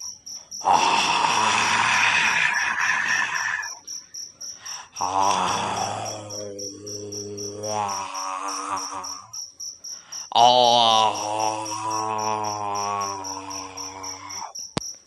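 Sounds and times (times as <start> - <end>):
crickets chirping: 0.0 - 15.0
person moaning like a ghost: 0.6 - 3.8, 4.8 - 9.4, 10.3 - 14.5.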